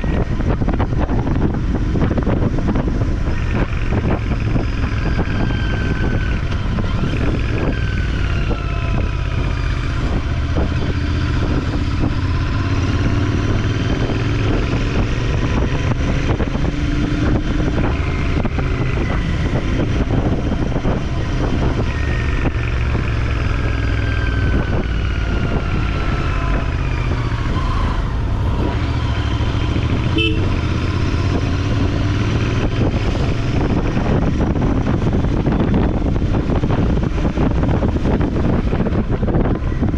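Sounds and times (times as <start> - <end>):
motorcycle engine running: 0.0 - 39.9
wind rush on microphone: 0.0 - 39.9.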